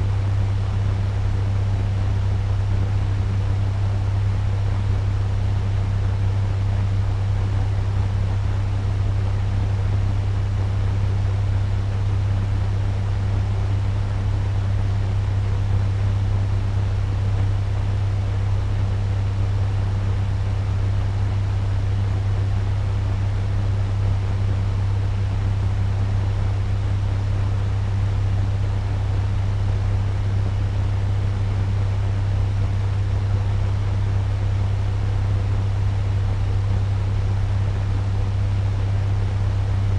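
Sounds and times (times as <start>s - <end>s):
fan rushing air: 0.0s - 39.9s
low hum: 14.2s - 39.9s.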